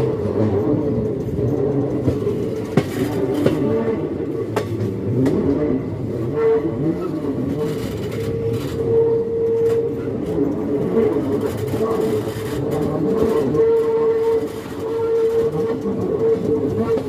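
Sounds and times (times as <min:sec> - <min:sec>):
rail clicks: 0:00.0 - 0:05.6, 0:07.2 - 0:17.0
train coaches rumbling and rattling: 0:00.0 - 0:17.0
humming tone: 0:05.2 - 0:17.0.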